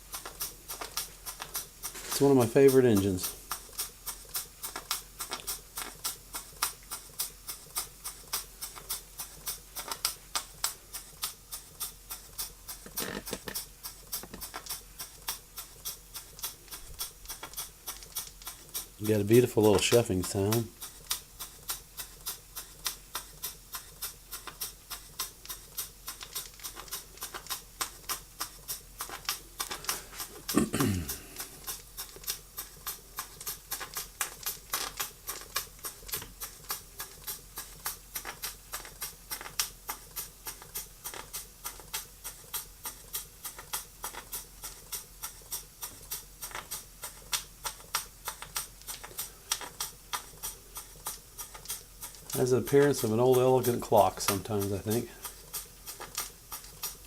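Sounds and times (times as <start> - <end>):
steam engine chuffing: 0.0 - 57.0.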